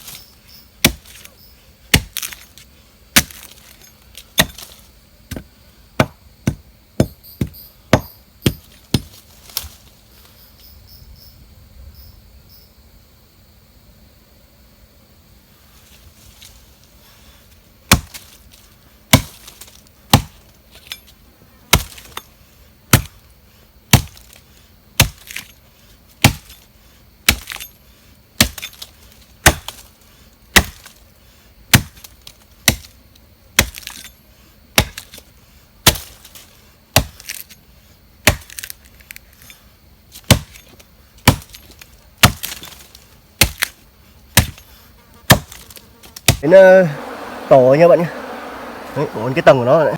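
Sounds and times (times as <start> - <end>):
hand tool chopping wood: 0.8 - 1.3, 1.9 - 2.5, 3.2 - 3.8, 4.4 - 9.2, 17.9 - 18.3, 19.1 - 20.4, 23.9 - 24.3, 25.0 - 25.5, 26.2 - 26.5, 28.4 - 29.9, 30.6 - 30.9, 31.7 - 32.1, 34.8 - 35.2, 35.8 - 36.2, 37.0 - 37.4, 38.3 - 38.7, 40.2 - 40.6, 41.2 - 43.8, 44.4 - 44.6, 45.3 - 45.7.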